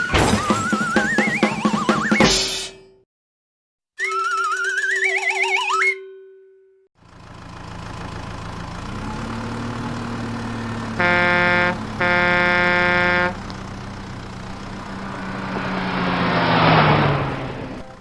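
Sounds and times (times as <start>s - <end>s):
truck engine humming: 7.0s - 18.0s
truck horn honks: 10.4s - 18.0s.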